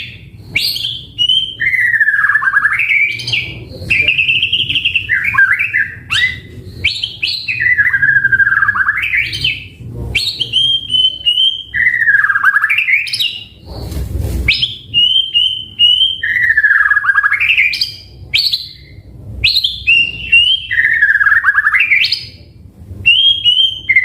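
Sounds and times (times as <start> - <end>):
songbird whistling song: 0.0 - 13.7, 14.5 - 24.0
rustling: 13.6 - 14.7.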